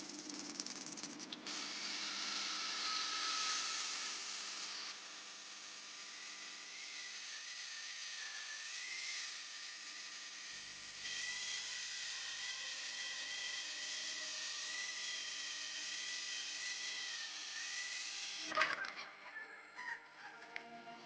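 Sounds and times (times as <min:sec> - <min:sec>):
clatter: 0:00.0 - 0:01.4
electric power tool whining: 0:01.4 - 0:19.2.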